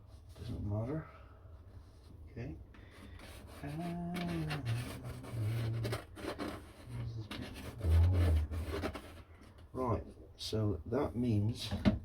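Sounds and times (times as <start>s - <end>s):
scratching and rubbing on wood: 2.8s - 9.7s.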